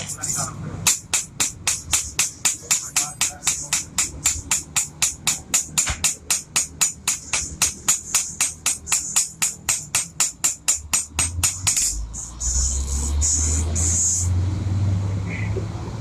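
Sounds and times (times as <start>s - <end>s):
music with tambourine beat: 6.9s - 12.4s
low engine hum: 11.3s - 16.0s.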